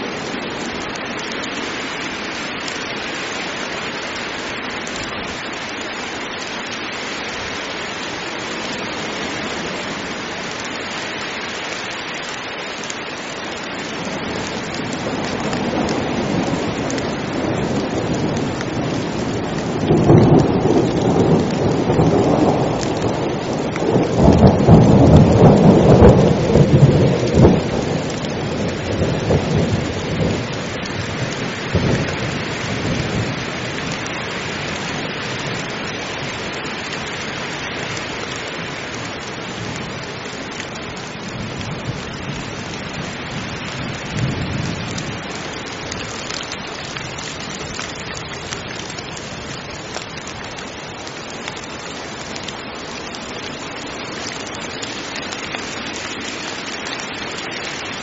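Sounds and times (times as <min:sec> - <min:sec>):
heavy rain falling: 0:00.0 - 0:58.0
thunder rolling: 0:14.9 - 0:34.0.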